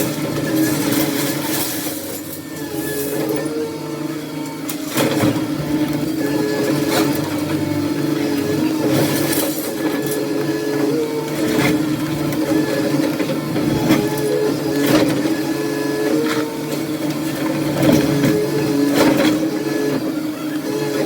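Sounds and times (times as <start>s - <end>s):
debris knocking and clattering: 0.0s - 3.4s
demolition machine engine and hydraulics: 0.0s - 21.0s.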